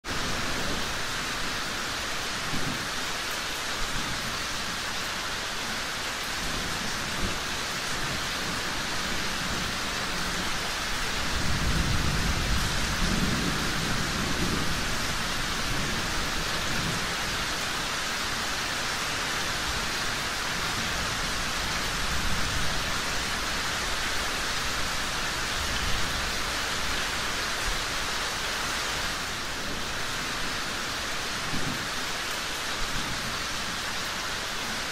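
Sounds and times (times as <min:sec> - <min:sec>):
steady rain: 0:00.0 - 0:34.9
distant thunder rumble: 0:06.6 - 0:17.5.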